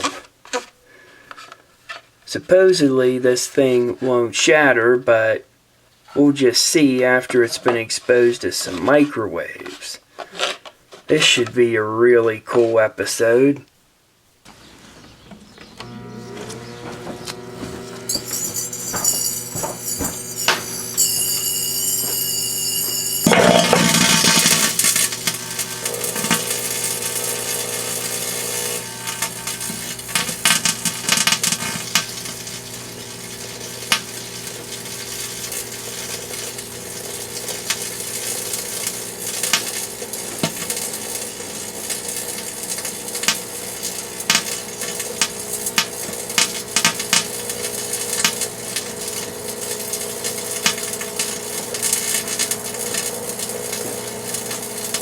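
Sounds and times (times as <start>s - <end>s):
microwave oven humming: 15.7s - 55.0s
light bulb crackling and popping: 15.8s - 55.0s.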